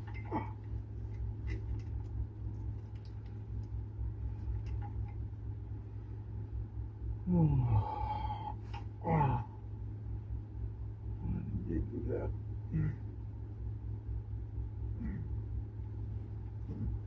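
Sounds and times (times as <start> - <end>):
steady low hum: 0.0 - 17.0
man groaning: 7.2 - 9.6, 12.7 - 13.1, 15.0 - 15.4.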